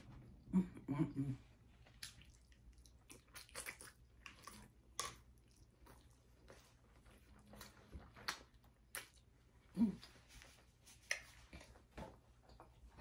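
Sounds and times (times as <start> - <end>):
person chewing soft food: 1.5 - 11.8.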